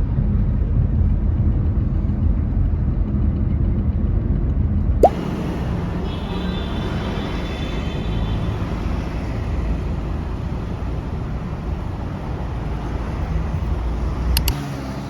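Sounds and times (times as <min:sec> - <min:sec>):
low vehicle rumble: 0:05.1 - 0:15.0
sharp clicks: 0:14.3 - 0:14.6.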